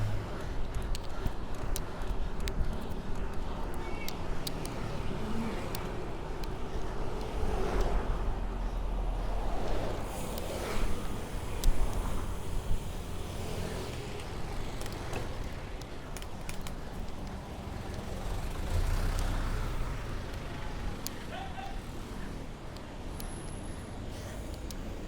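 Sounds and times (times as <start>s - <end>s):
city road traffic: 0.0s - 25.0s
sharp clicks: 0.2s - 8.8s.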